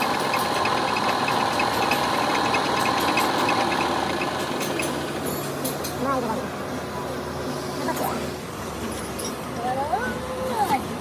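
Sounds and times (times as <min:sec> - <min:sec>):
fast regular ticking: 0:00.0 - 0:05.2
workshop machine running: 0:00.0 - 0:11.0.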